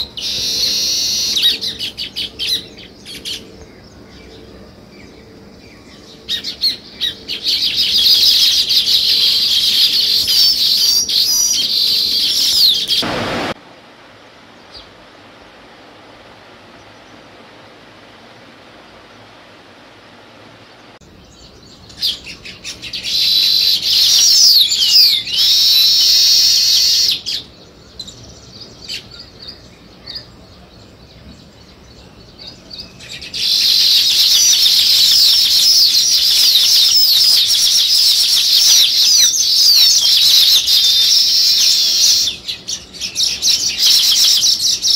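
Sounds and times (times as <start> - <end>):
small birds chirping: 20.6 - 44.9.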